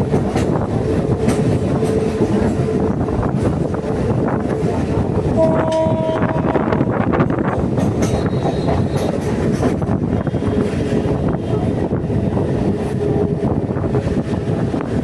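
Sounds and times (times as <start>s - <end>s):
electric train rumble: 0.0s - 15.0s
wheels clicking over rails: 7.2s - 11.0s.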